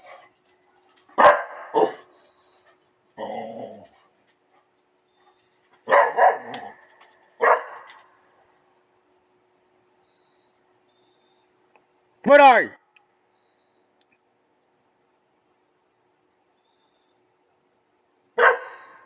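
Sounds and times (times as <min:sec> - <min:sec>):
dog barking: 0:01.2 - 0:02.1, 0:05.8 - 0:06.8, 0:07.4 - 0:08.0, 0:18.4 - 0:19.0.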